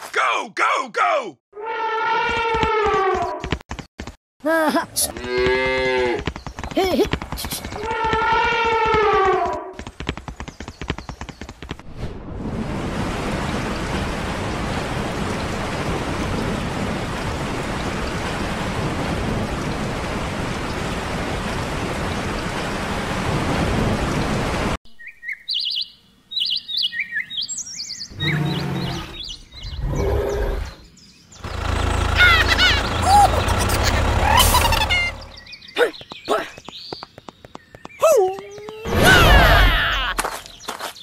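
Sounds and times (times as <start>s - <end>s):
birds chirping: 5.0s - 11.8s, 24.1s - 41.0s
heavy rain: 12.4s - 24.8s, 31.5s - 35.3s.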